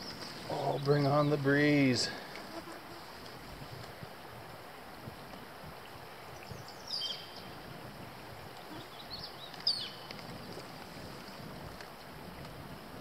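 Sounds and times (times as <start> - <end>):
bird calling: 8.6 - 10.0.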